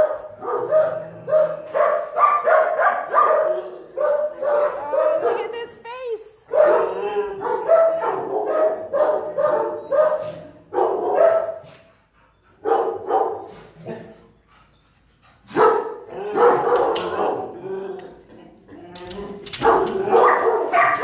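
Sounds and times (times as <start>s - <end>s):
dog barking: 0.0s - 5.5s, 6.5s - 11.7s, 12.6s - 14.1s, 15.5s - 17.6s, 19.6s - 21.0s.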